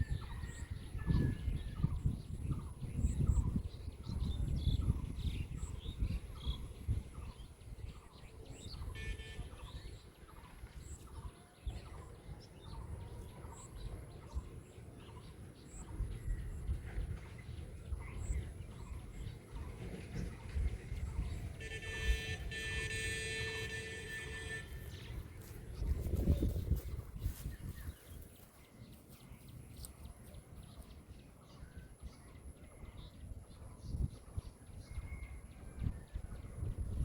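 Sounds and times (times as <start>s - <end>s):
birds chirping: 0.0s - 37.0s
wind rumble on microphone: 0.0s - 37.0s.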